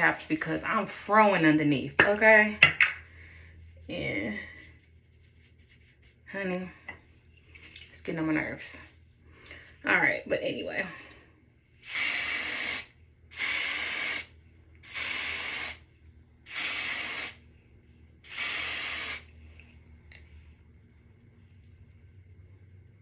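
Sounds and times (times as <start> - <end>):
aerosol spray can bursts: 11.8 - 15.8, 16.5 - 17.4, 18.2 - 19.3.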